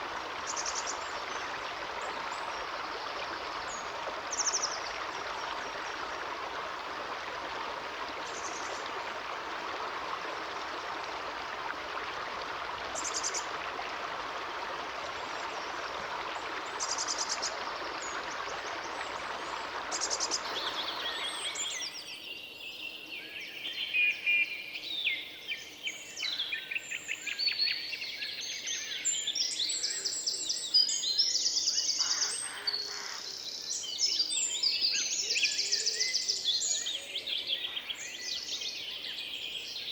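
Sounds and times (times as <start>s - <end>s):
stream rushing: 0.0s - 21.8s.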